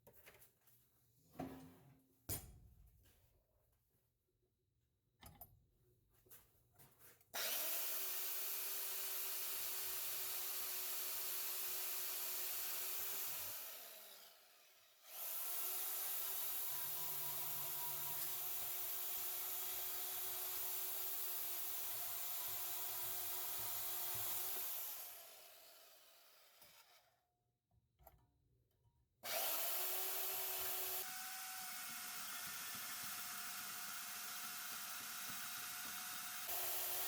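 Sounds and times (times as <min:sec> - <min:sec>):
electric power tool motor running: 0:07.4 - 0:26.6, 0:29.3 - 0:37.0.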